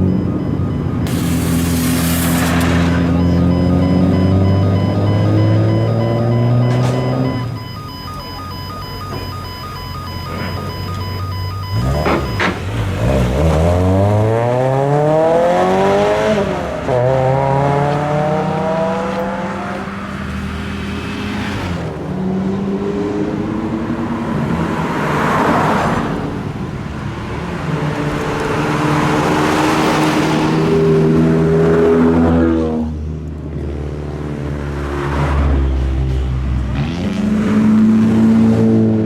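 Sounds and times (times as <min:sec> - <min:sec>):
cars with loud exhausts accelerating: 0:00.0 - 0:39.0
burst of rushing noise: 0:01.1 - 0:03.6.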